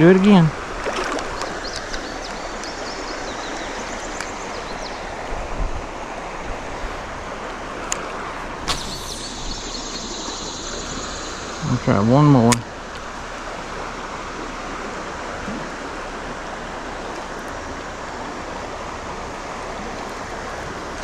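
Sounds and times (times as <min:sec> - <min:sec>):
creek water running: 0:00.0 - 0:21.0
faint high chirping: 0:08.7 - 0:12.6.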